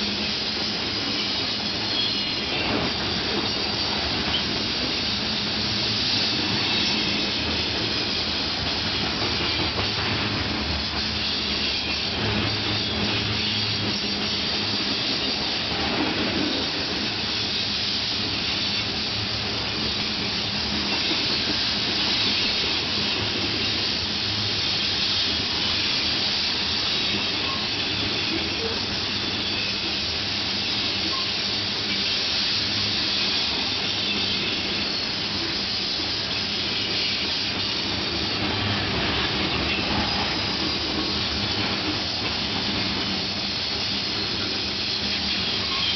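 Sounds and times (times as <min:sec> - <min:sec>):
freight train rolling on rails: 0:00.0 - 0:45.9.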